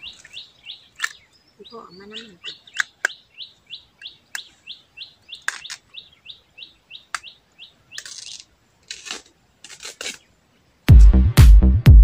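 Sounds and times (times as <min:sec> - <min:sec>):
bird chirping: 0:00.0 - 0:08.6.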